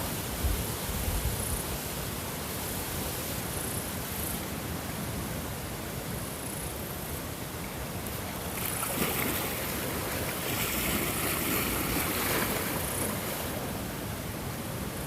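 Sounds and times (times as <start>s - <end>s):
ocean surf hissing: 7.8s - 15.0s.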